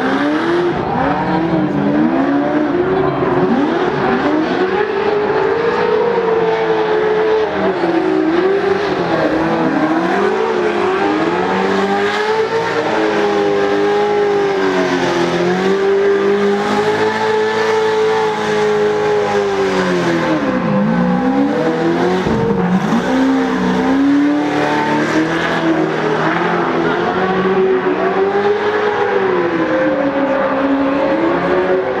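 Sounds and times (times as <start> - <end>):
truck engines revving: 0.0 - 32.0.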